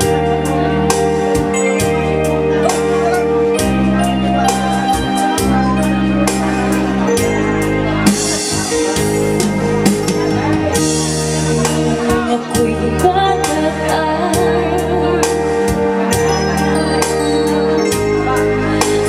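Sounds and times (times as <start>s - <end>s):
programmed drum beat: 0.0s - 13.7s
electronic keyboard chords: 0.0s - 19.0s
person singing: 11.5s - 16.3s.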